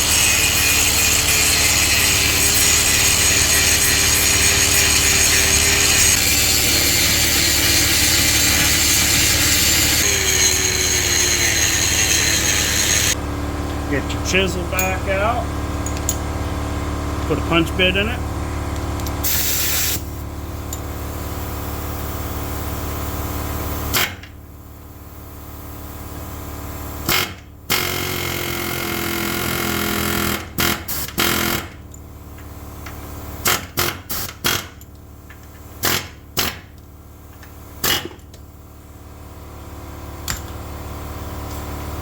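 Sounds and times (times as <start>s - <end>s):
air hammer hammering: 0.0s - 13.2s
steady mechanical drone: 0.0s - 20.5s.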